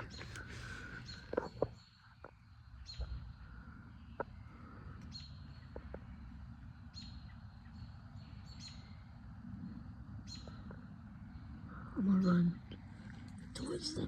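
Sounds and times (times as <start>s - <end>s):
bird chirping: 0.0s - 14.0s
faint low rumble: 0.0s - 14.0s.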